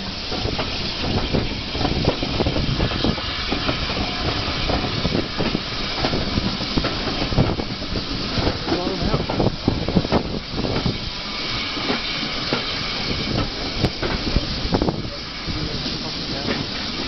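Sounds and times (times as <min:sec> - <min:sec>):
steam hiss: 0:00.0 - 0:17.0
train running noise: 0:00.0 - 0:17.0
wheels clanking on track: 0:00.0 - 0:17.0.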